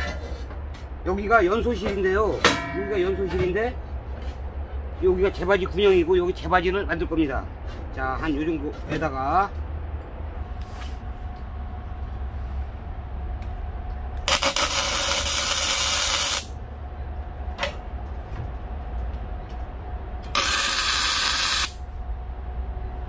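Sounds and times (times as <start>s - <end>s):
steady low hum: 0.0s - 23.0s
arc welding hiss and crackle: 14.2s - 16.6s, 20.3s - 21.8s.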